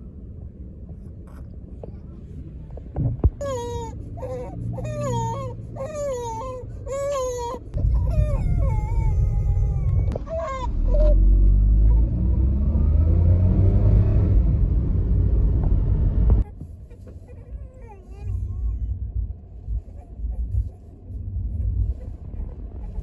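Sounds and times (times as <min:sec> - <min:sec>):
low rumble: 0:00.0 - 0:23.0
infant crying: 0:03.4 - 0:12.0.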